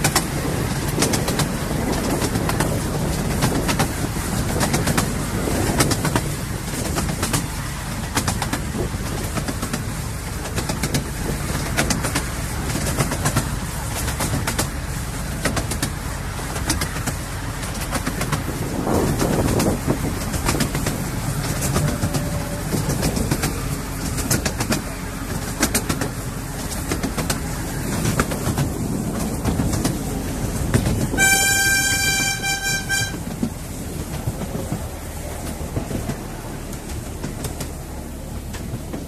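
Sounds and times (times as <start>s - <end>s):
miniature train running on track: 0.0s - 39.0s
wheels clicking over rails: 0.0s - 39.0s
locomotive high signal note: 31.1s - 33.4s.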